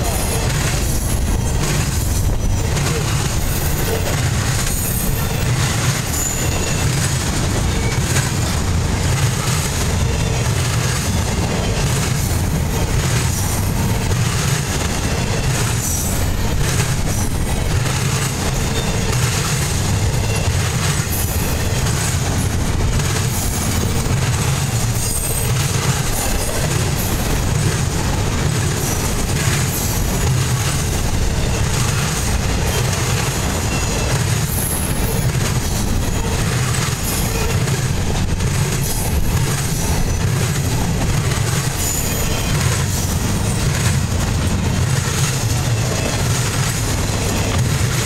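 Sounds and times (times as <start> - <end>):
rumble of wheels on rails: 0.0 - 48.0
high-pitched wheel squeals: 2.3 - 7.1.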